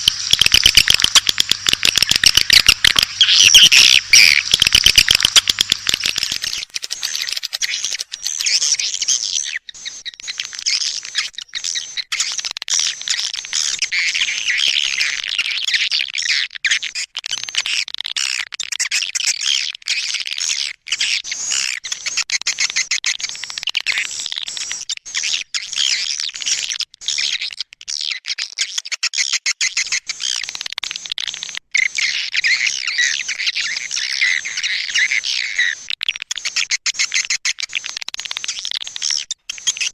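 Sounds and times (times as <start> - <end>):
quick clicking bird notes: 0.0 - 8.8
swiftlets chirping and twittering: 0.0 - 9.2.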